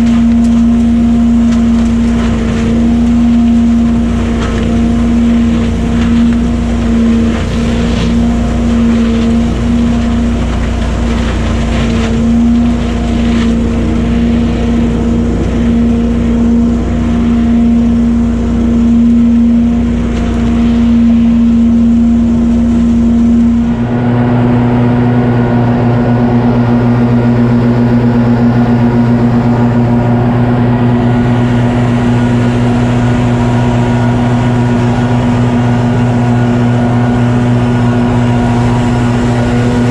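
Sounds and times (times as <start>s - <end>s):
crackling: 0.0s - 24.0s
gas engine running: 0.0s - 39.9s
low engine hum: 0.0s - 39.9s.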